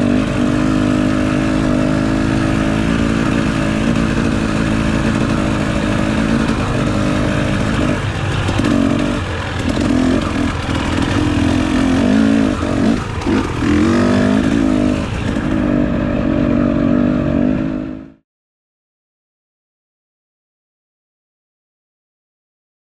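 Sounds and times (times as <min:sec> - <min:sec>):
dirt bike engine revving: 0:00.0 - 0:18.2.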